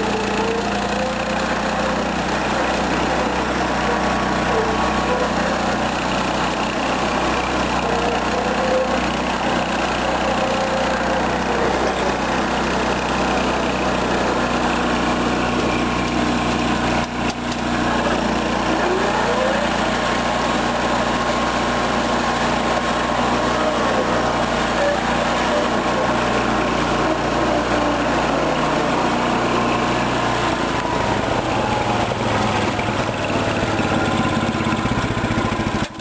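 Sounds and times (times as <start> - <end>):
small engine running: 0.0 - 36.0.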